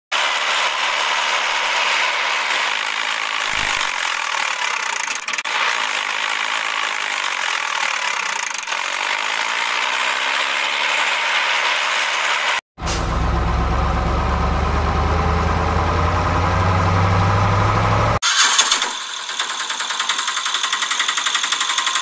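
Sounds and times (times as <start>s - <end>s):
toy electric motor whirring: 0.2s - 12.6s, 18.2s - 22.0s.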